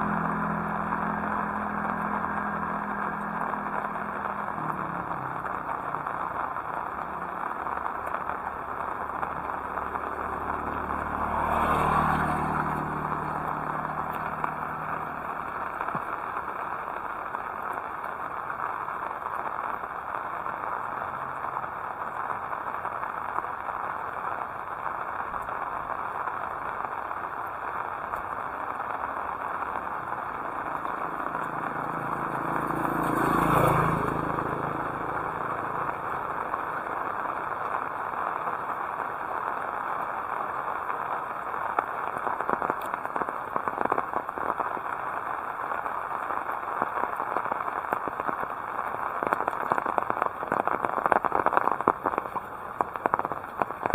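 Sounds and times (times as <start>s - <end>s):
motor vehicle passing: 0.0s - 17.0s, 28.1s - 44.0s
heavy rain hissing: 0.0s - 53.9s.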